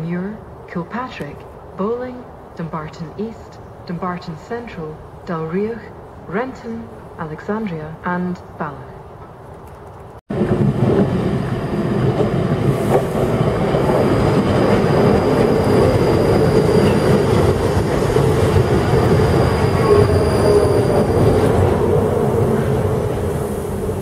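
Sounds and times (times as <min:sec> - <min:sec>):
train wheels rumbling on rail: 0:09.5 - 0:24.0.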